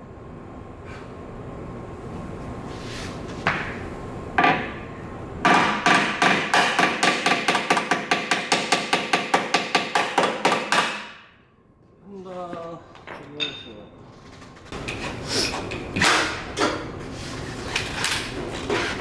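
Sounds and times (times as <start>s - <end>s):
hammer striking sheet metal: 5.5s - 11.4s.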